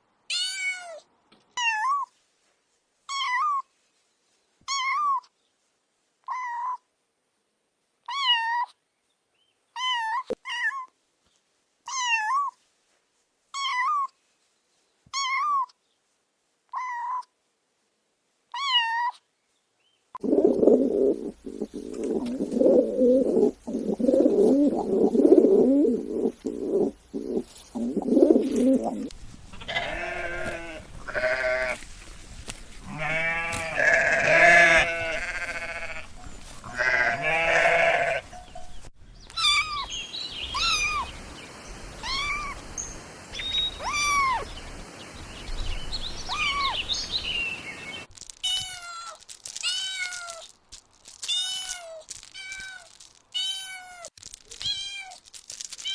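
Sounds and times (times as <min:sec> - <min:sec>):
kittens meowing: 0:39.4 - 0:44.9, 0:46.2 - 0:47.8.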